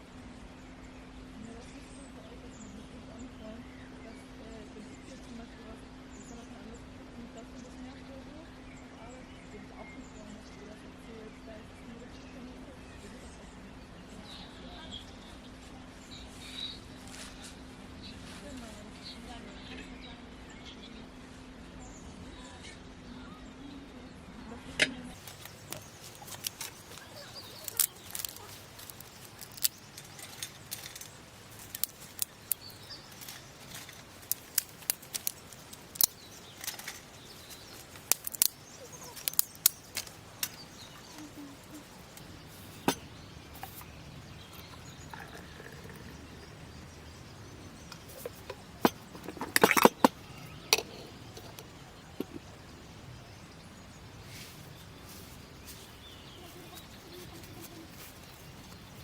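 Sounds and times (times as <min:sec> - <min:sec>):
small objects clicking and clinking: 0:25.2 - 0:46.5, 0:47.9 - 0:52.5.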